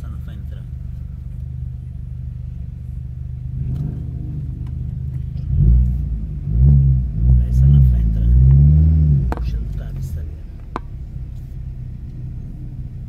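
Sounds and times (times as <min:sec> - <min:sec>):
car engine revving inside cabin: 0:00.0 - 0:13.0.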